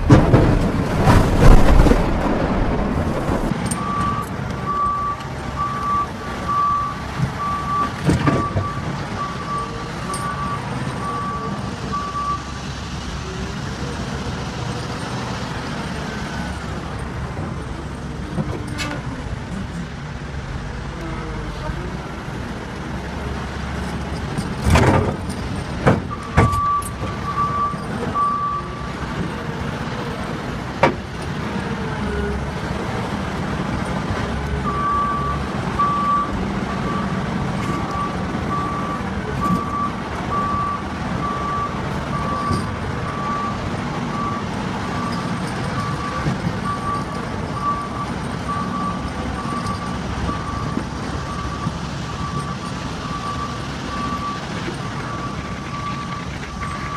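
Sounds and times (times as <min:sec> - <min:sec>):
heavy machine engine running: 0:00.0 - 0:56.9
reversing alarm beeping: 0:03.7 - 0:12.5, 0:26.1 - 0:28.9, 0:34.6 - 0:56.9.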